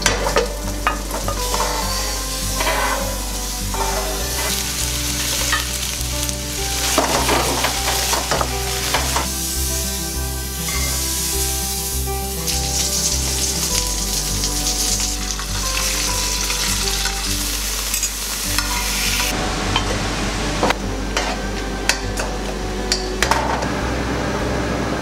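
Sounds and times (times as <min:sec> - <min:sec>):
vegetables sizzling in oil: 0:00.0 - 0:19.4
light acoustic music: 0:00.0 - 0:25.0.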